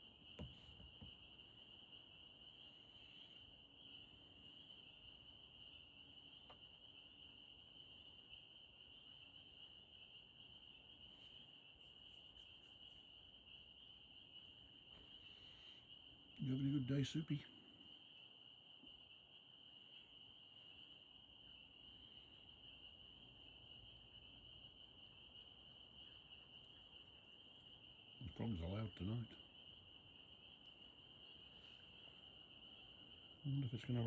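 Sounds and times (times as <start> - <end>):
chorus of frogs trilling: 0.0 - 34.0.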